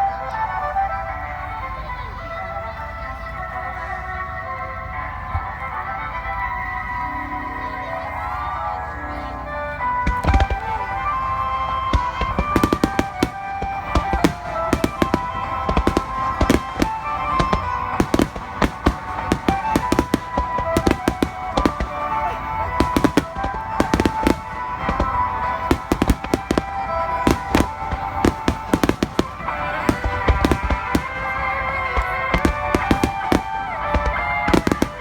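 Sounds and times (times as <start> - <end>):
fireworks bangs and crackles: 0.0 - 35.0
music with long held notes: 0.0 - 35.0.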